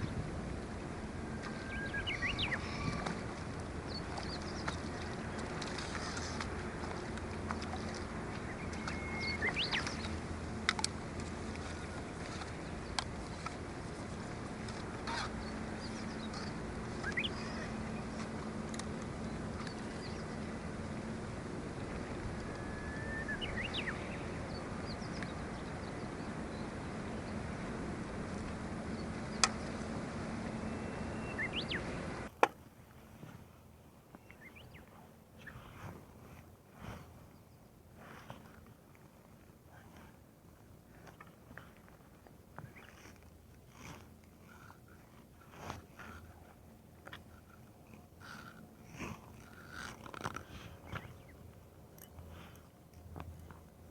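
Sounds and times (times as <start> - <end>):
wind on microphone: 0.0 - 32.3
water noise: 0.0 - 53.9
rising bird calls: 1.3 - 4.7, 8.5 - 10.1, 15.0 - 18.2, 22.3 - 25.9, 30.6 - 32.0.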